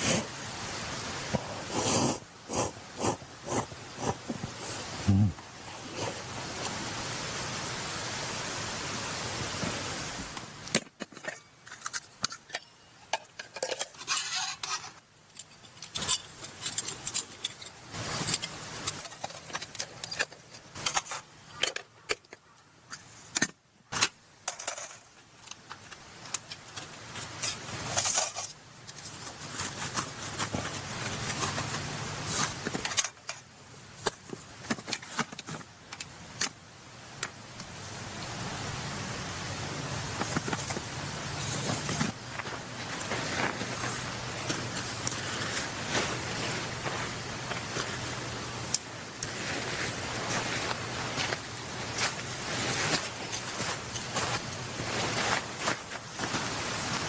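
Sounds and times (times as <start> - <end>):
steady hiss: 0.0 - 57.0
camping gear clinking and rattling: 10.5 - 36.8, 39.8 - 57.0.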